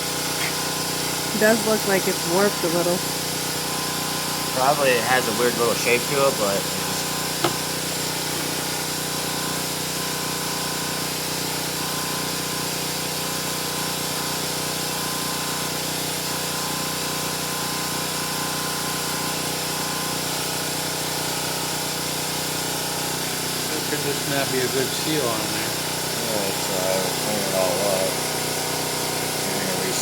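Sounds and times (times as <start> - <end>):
motor droning: 0.0 - 10.5, 22.8 - 30.0.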